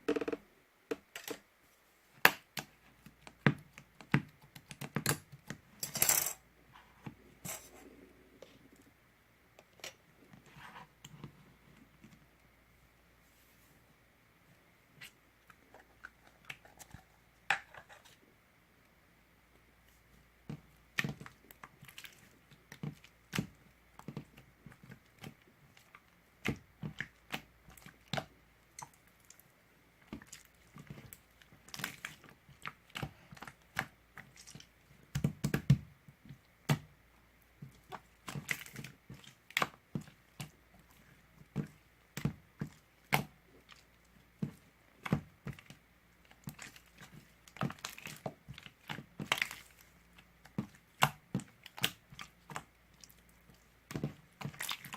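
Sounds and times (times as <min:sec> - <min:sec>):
small objects clicking and tapping: 0:02.2 - 0:06.4.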